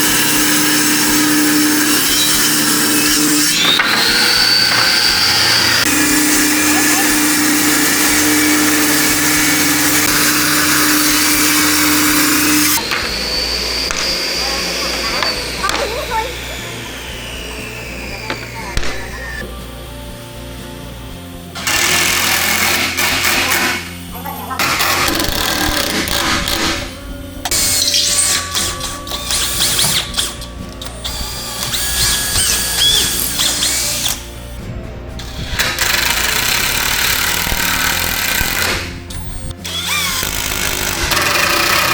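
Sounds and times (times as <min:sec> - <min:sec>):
background music: 0:00.0 - 0:41.9
cutting hiss: 0:00.0 - 0:41.9
electric power tool motor whine: 0:00.0 - 0:41.9.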